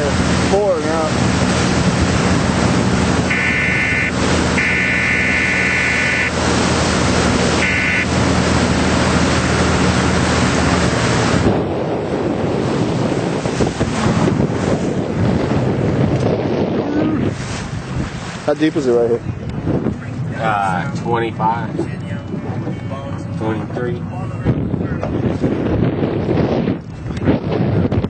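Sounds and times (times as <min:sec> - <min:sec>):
boat motor running: 0:00.0 - 0:28.0
water noise: 0:00.0 - 0:28.0
wind on microphone: 0:00.0 - 0:28.0
electronic beeps: 0:03.3 - 0:06.3, 0:07.6 - 0:08.1.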